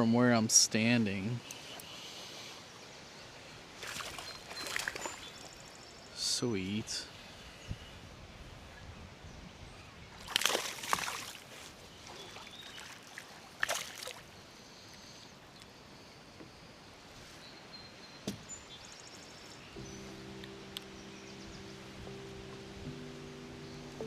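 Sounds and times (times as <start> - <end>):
outdoor background: 0.0 - 24.0
water sloshing and splashing: 3.8 - 5.5, 10.2 - 14.3.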